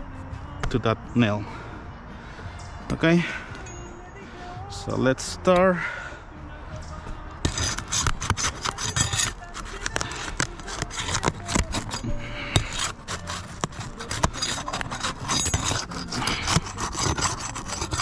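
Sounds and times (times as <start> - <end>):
roof shingles being scraped: 7.4 - 18.0.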